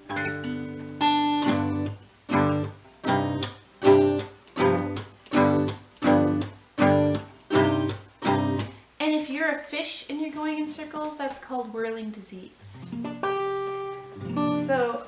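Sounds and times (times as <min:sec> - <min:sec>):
acoustic guitar strumming: 0:00.0 - 0:08.8, 0:12.6 - 0:15.0.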